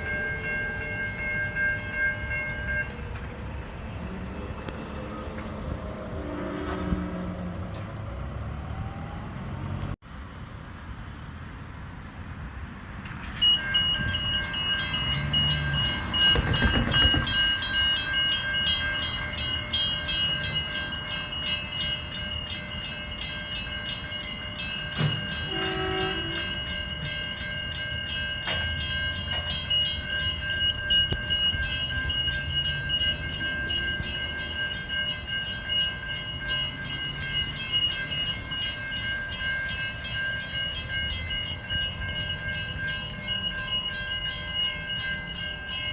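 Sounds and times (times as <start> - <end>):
level crossing warning bells: 0.0 - 9.9, 13.2 - 45.9
train rumble: 0.0 - 45.9
train horn toot: 25.4 - 26.7.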